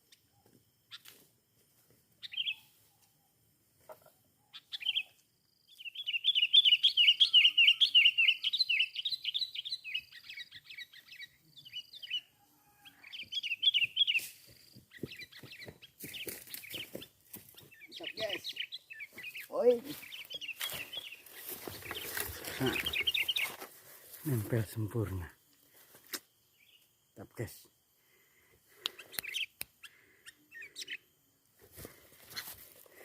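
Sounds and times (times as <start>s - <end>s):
fast chattering bird song: 4.5s - 5.1s, 5.8s - 12.3s, 13.0s - 14.3s, 14.9s - 23.6s, 28.7s - 31.1s
bird calling: 5.8s - 23.6s, 28.7s - 31.1s.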